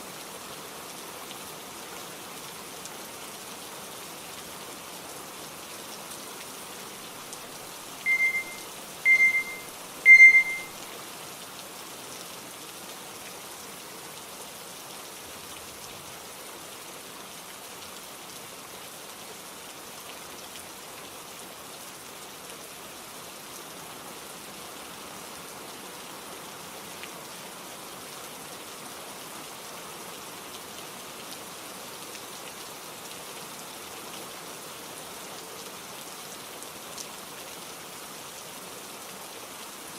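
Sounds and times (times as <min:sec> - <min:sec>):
steady rain: 0:00.0 - 0:39.9
short electronic beeps: 0:08.1 - 0:10.7.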